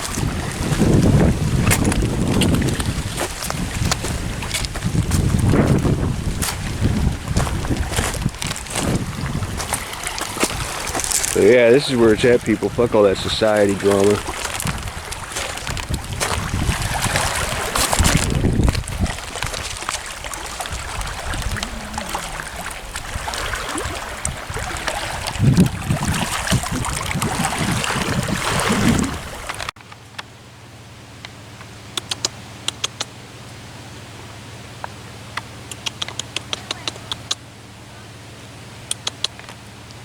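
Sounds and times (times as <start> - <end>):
wind buffeting microphone: 0.0 - 29.7
water lapping at shore: 0.0 - 29.8
sharp clicks: 32.0 - 33.1, 35.4 - 37.4, 38.9 - 39.6.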